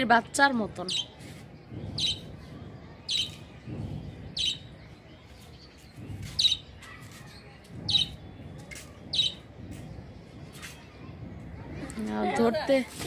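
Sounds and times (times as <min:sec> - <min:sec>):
small bird chirping: 0:00.8 - 0:01.2, 0:01.8 - 0:08.3, 0:09.0 - 0:09.5.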